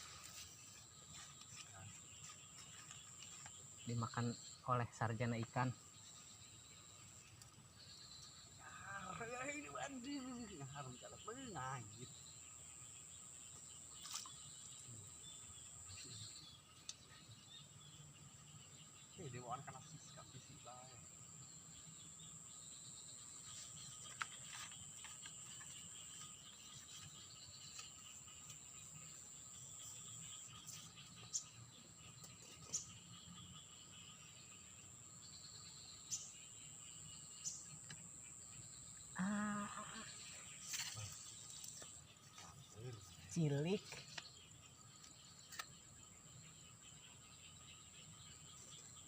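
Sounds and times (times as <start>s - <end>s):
faint outdoor ambience: 0.0s - 49.0s
insects droning: 0.0s - 49.0s.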